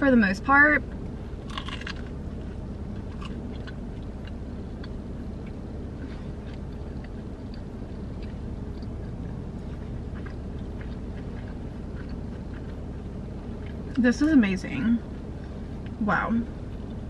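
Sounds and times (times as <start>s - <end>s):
steady low hum: 0.0s - 17.0s
person chewing: 1.4s - 14.0s.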